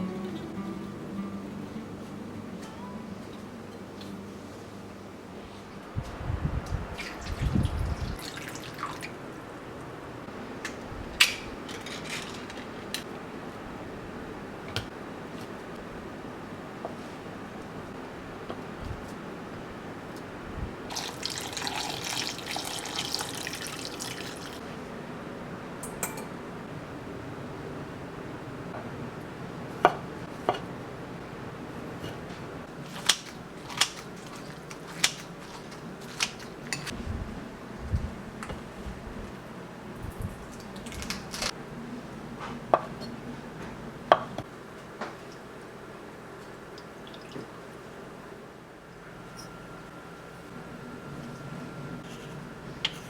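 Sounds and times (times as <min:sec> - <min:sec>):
utensils clinking against dishes: 0:11.2 - 0:13.1, 0:25.8 - 0:26.4, 0:33.0 - 0:37.0.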